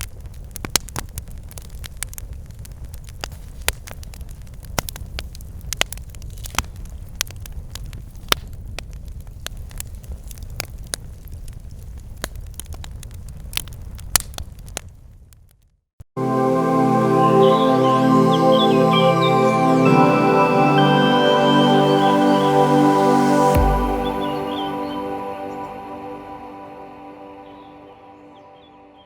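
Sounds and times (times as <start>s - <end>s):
wood fire crackling and snapping: 0.1s - 15.6s.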